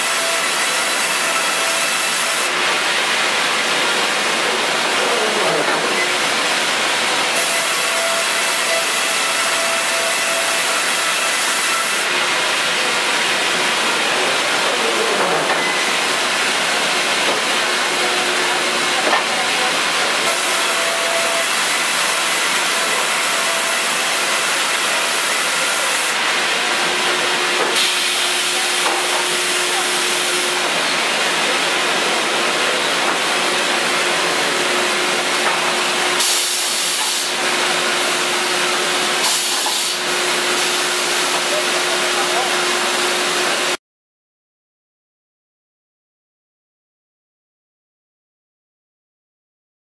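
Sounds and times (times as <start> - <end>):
loud hissing machinery: 0.0 - 43.8.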